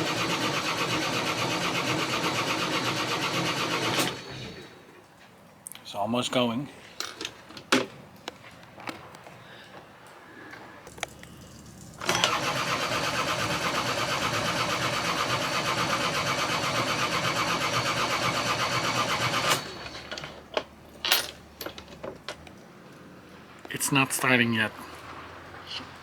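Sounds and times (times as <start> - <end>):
starter motor cranking engine: 0.0 - 4.7, 10.9 - 20.5.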